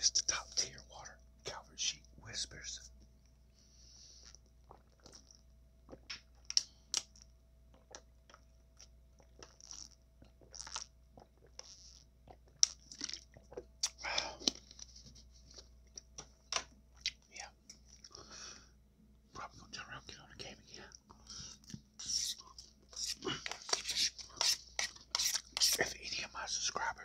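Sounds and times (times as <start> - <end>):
person chewing crunchy food: 4.2 - 16.2
wet mouth clicks: 9.4 - 13.2, 13.8 - 14.6, 21.6 - 25.8.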